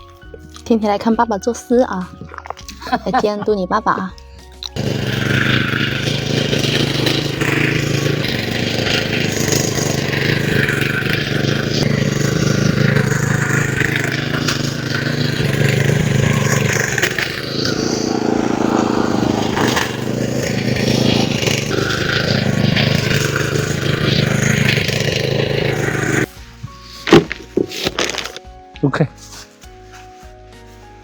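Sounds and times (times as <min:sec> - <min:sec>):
small engine droning: 0:04.6 - 0:28.4
machine scraping and rattling: 0:04.8 - 0:28.4.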